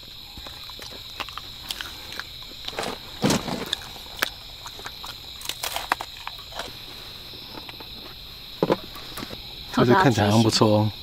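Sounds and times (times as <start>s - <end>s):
insects chirring: 0.0s - 11.0s
handling knocks: 2.8s - 3.8s.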